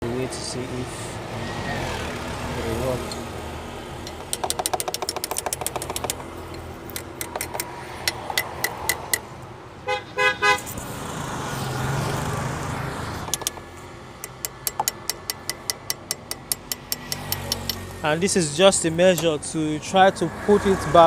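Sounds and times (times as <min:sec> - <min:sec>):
rapid sharp clicking: 0:04.0 - 0:09.2, 0:13.2 - 0:17.8
car horn toots: 0:09.8 - 0:10.6.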